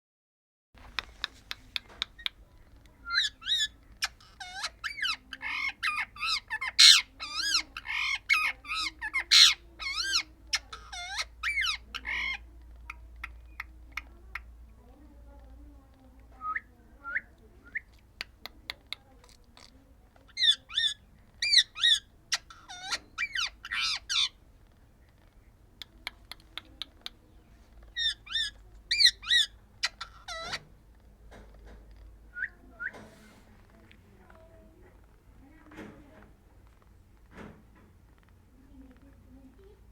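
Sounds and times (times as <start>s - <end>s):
sharp clicks: 0.8s - 3.0s
parrot squawking and chattering: 0.8s - 14.6s, 18.8s - 24.4s, 25.2s - 30.8s
parrot chirps: 3.0s - 12.4s, 20.3s - 24.4s, 27.9s - 30.7s.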